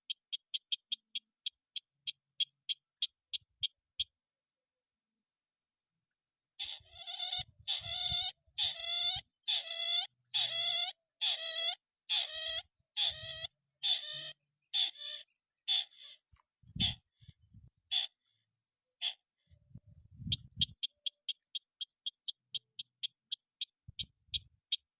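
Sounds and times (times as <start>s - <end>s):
crake harsh calls: 6.6s - 24.8s.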